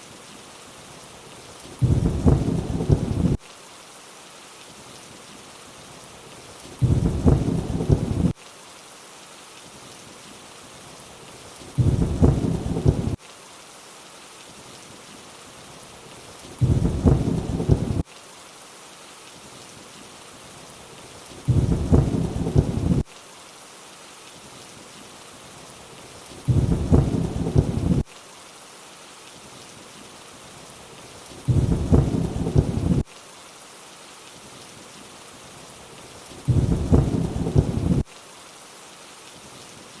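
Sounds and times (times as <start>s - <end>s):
rain hiss: 0.0s - 40.0s
low thunder rumble: 1.8s - 3.4s, 6.8s - 8.3s, 11.8s - 13.2s, 16.6s - 18.0s, 21.5s - 23.0s, 26.5s - 28.0s, 31.5s - 33.0s, 36.5s - 38.0s.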